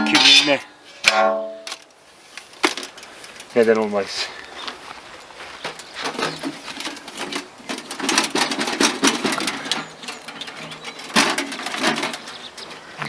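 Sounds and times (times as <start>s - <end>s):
hand tool digging soil: 5.7s - 13.0s.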